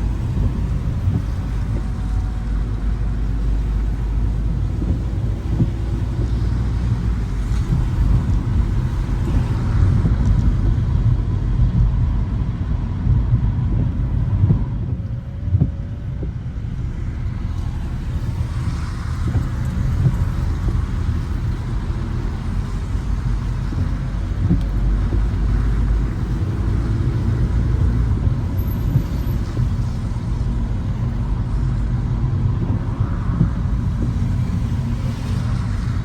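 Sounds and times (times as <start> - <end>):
tyres hissing on wet road: 0.0 - 11.4, 16.4 - 36.0
car engine and road rumble: 0.0 - 36.0.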